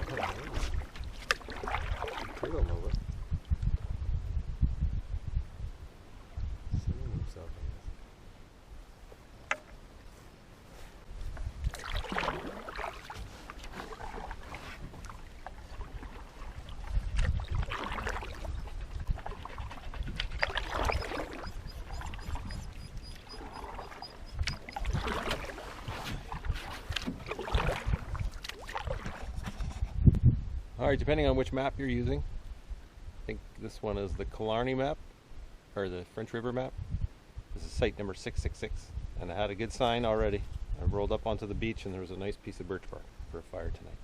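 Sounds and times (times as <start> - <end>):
paddle splashing through water: 0.0 - 2.7, 11.4 - 29.8.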